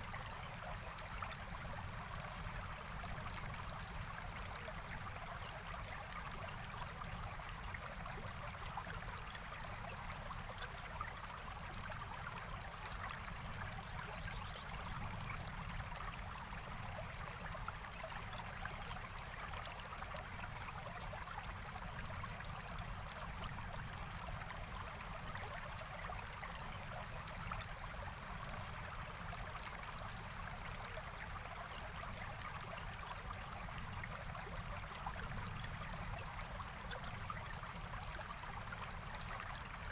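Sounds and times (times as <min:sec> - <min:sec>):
stream flowing: 0:11.4 - 0:39.9.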